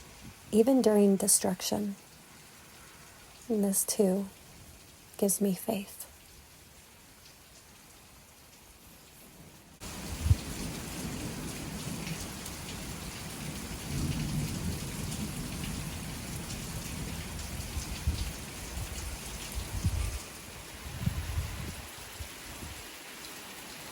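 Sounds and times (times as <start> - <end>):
steady rain falling: 0.0 - 23.9
rolling thunder: 9.8 - 20.2.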